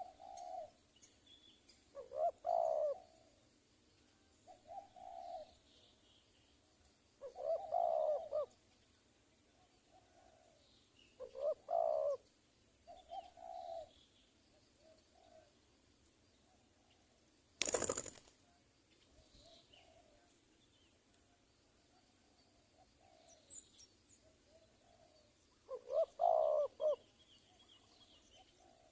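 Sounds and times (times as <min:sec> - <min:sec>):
doves cooing: 0:00.0 - 0:00.8, 0:02.0 - 0:03.4, 0:04.5 - 0:05.6, 0:07.2 - 0:08.6, 0:11.2 - 0:12.2, 0:12.9 - 0:13.9, 0:17.6 - 0:18.2, 0:22.8 - 0:23.5, 0:24.5 - 0:27.1, 0:28.4 - 0:28.9.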